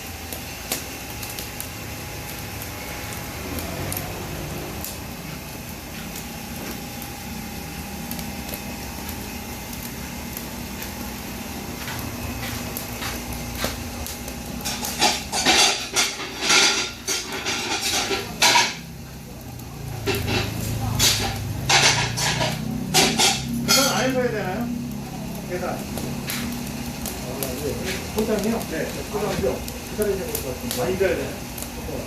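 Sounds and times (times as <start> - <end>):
restaurant background hum: 0.0 - 32.0
dishes and utensils clattering: 14.7 - 18.8, 20.1 - 23.9.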